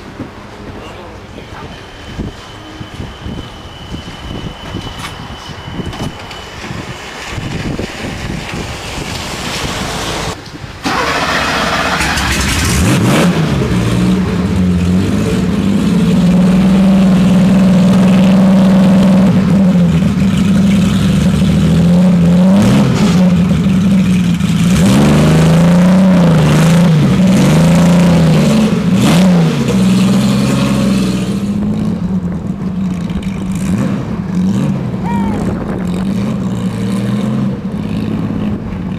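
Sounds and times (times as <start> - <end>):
race car engine starting and revving: 9.2 - 38.9.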